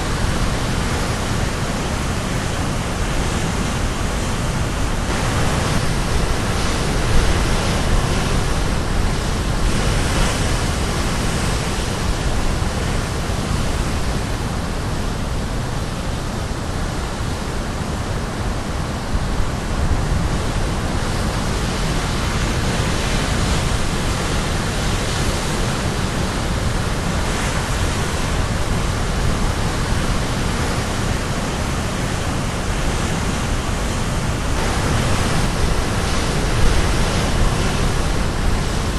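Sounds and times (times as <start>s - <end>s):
wind rumble on microphone: 0.0s - 38.9s
sea waves breaking on rocks: 21.0s - 38.9s.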